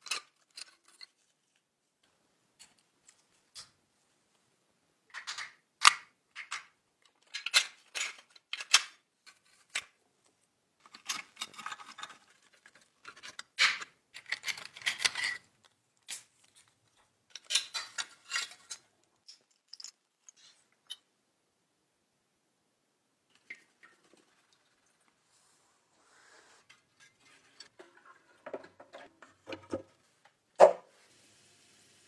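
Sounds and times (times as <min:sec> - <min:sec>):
small metal parts clicking: 0:05.1 - 0:09.9, 0:10.8 - 0:15.4, 0:16.0 - 0:21.1.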